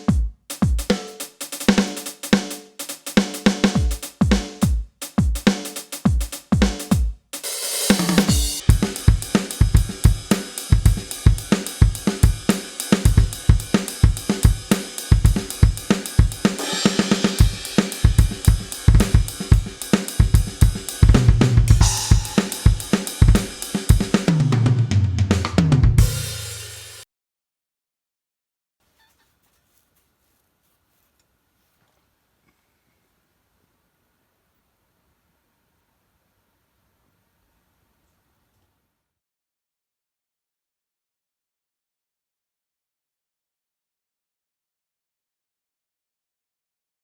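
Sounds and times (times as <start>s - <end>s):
electronic drum kit groove: 0.0s - 27.0s
tom drum fill: 0.0s - 27.0s.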